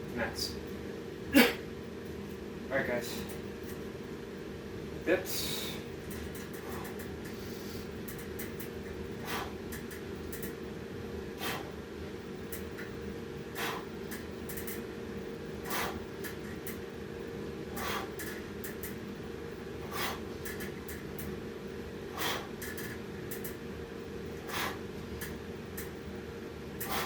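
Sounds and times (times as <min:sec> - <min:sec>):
man breathing hard: 0:05.3 - 0:05.9, 0:06.5 - 0:08.0, 0:09.2 - 0:09.6, 0:11.3 - 0:11.8, 0:13.5 - 0:14.0, 0:15.6 - 0:16.1, 0:17.7 - 0:18.4, 0:19.8 - 0:20.4, 0:22.1 - 0:22.9, 0:24.4 - 0:24.9, 0:26.8 - 0:27.0.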